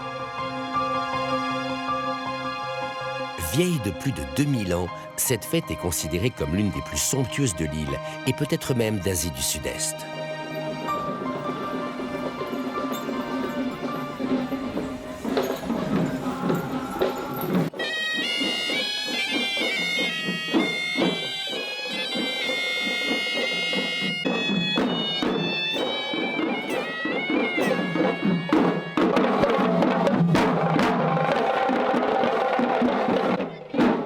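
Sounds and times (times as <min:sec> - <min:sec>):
shrill reed pipe melody: 0:03.4 - 0:29.6
drumming: 0:10.9 - 0:34.0.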